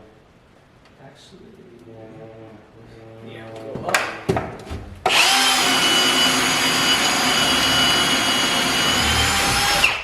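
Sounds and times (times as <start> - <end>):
power drill drilling wood: 5.1 - 10.0.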